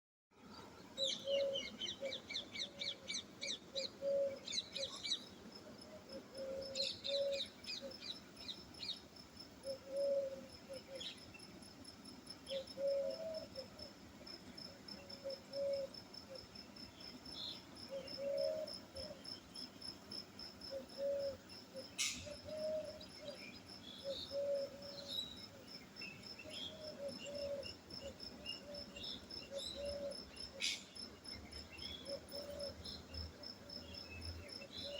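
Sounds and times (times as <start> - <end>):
cricket trilling: 9.6 - 11.0, 14.6 - 34.9.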